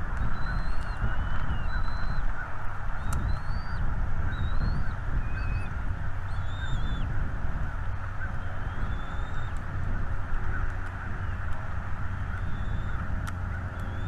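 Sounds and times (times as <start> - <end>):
small birds whistling: 0.1 - 2.3, 3.0 - 5.7, 6.3 - 7.1, 8.2 - 9.6, 12.2 - 14.0.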